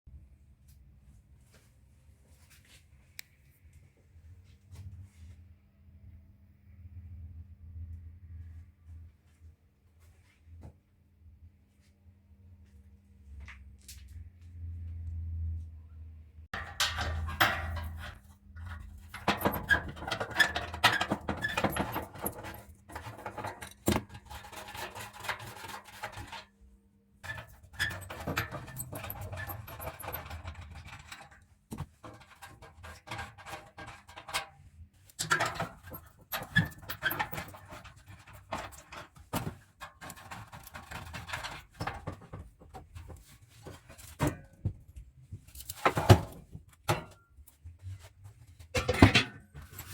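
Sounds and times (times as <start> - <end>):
metal fan parts clinking: 16.6 - 26.5, 27.2 - 42.3.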